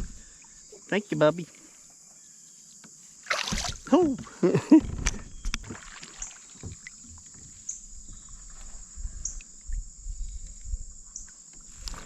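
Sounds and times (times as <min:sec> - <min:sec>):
kayak knocks and bumps: 0:03.3 - 0:08.3.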